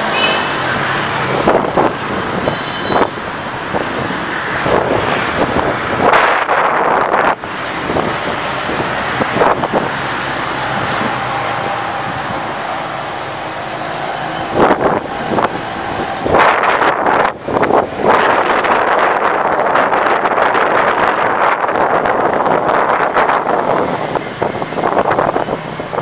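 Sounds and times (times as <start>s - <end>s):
road traffic: 0.0s - 26.0s
wind gusts buffeting microphone: 0.0s - 26.0s.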